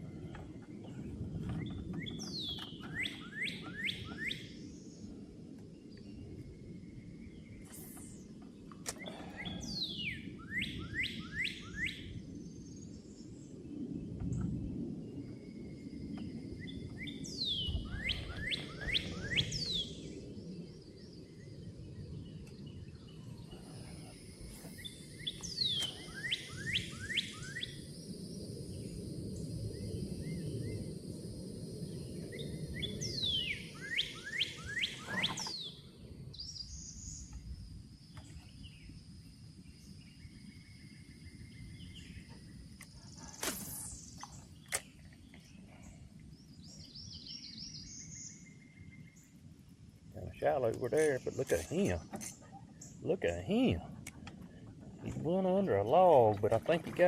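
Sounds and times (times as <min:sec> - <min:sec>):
songbird whistling: 0:01.6 - 0:04.7, 0:08.9 - 0:12.1, 0:16.6 - 0:20.2, 0:24.6 - 0:27.8, 0:32.3 - 0:37.4.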